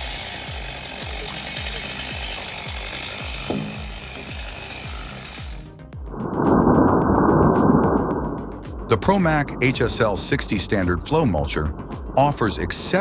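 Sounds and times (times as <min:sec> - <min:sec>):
chainsaw cutting wood: 0:00.0 - 0:05.8
loud deep rushing machine noise: 0:00.0 - 0:13.0
music with thumping beat: 0:00.0 - 0:13.0.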